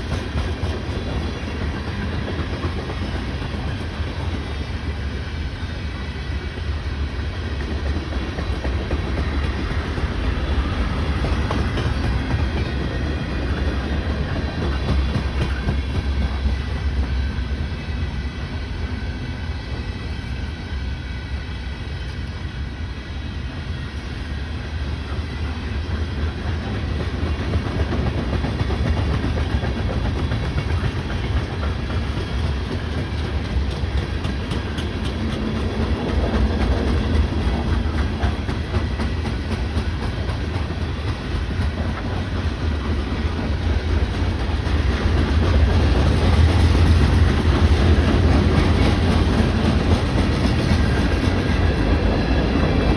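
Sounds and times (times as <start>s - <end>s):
freight train rumbling past: 0.0s - 52.9s
wheels clacking over rail joints: 26.6s - 52.9s.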